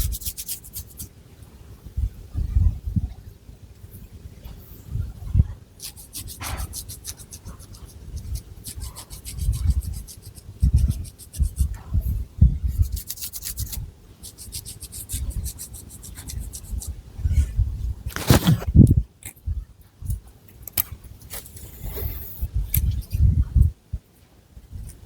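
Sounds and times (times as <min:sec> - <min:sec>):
fingernails scratching hair: 0:00.0 - 0:01.1, 0:05.8 - 0:11.8, 0:12.7 - 0:17.0, 0:18.1 - 0:18.7.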